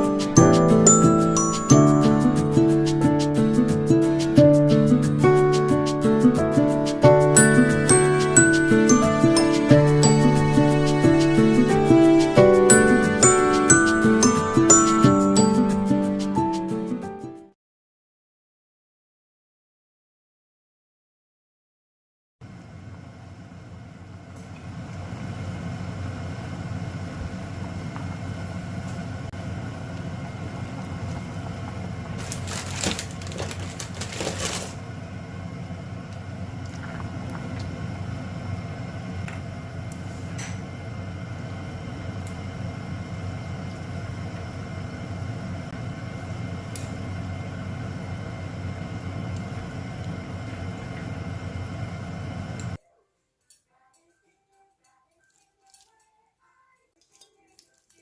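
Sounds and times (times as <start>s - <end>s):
machine hum with fixed tones: 34.0s - 52.8s.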